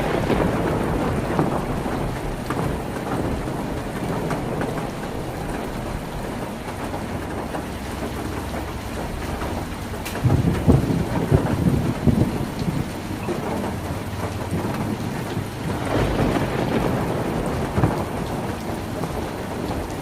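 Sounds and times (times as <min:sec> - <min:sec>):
heavy rain on a tin roof: 0:00.0 - 0:20.0.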